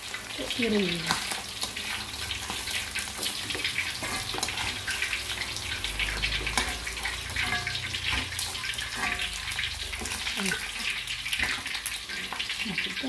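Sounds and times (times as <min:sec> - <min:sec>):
food sizzling in hot oil: 0:00.0 - 0:13.0
metal spatula stirring: 0:00.1 - 0:13.0.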